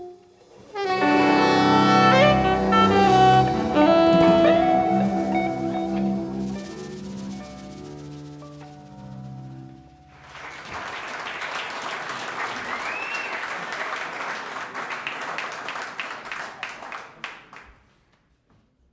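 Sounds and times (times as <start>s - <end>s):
band's final chord: 0.8s - 8.1s
audience clapping and cheering: 10.2s - 17.8s
rising and falling whistle: 12.8s - 13.5s.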